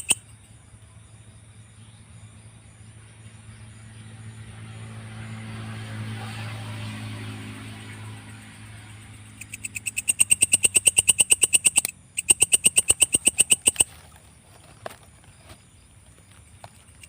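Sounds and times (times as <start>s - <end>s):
katydid chirping: 0.0s - 0.5s, 8.2s - 17.0s.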